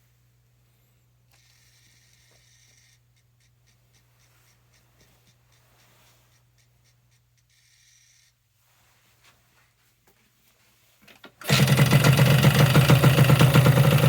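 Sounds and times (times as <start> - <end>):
low electrical hum: 0.0 - 11.5
faint high-pitched motor buzzing: 1.3 - 8.4.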